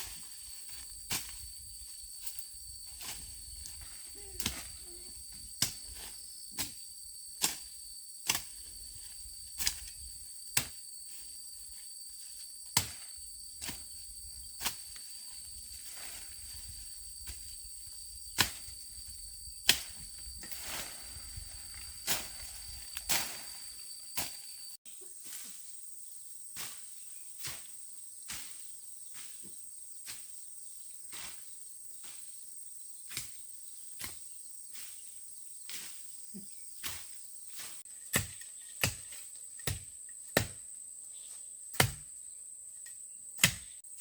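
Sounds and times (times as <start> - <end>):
high-pitched insect drone: 0.1 - 26.4.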